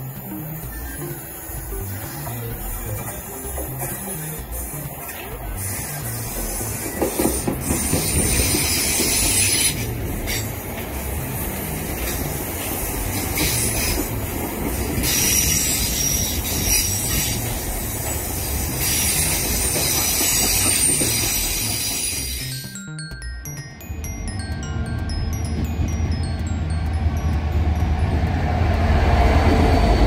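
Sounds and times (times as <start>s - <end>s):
train wheels rumbling on rails: 0.0s - 22.6s, 24.7s - 30.0s
high wheel squeal: 0.5s - 10.7s, 13.1s - 22.5s.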